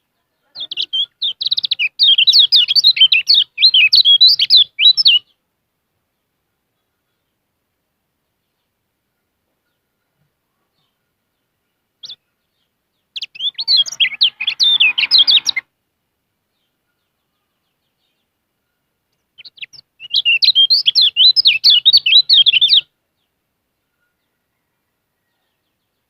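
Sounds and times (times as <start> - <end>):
bird chirping and twittering: 0.0 - 5.4, 8.3 - 15.7, 16.5 - 24.2.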